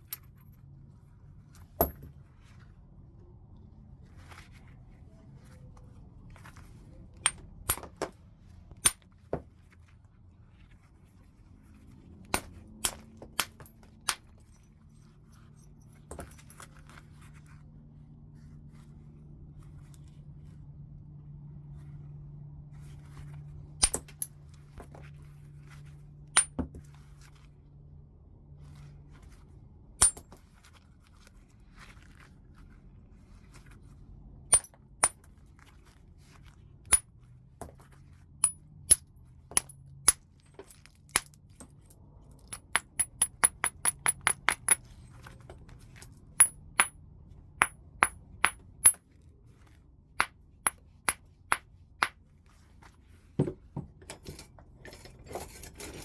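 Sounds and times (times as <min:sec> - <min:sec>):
stone knapping clinks: 0:01.8 - 0:02.0, 0:12.4 - 0:14.2, 0:23.8 - 0:24.3, 0:30.0 - 0:30.4.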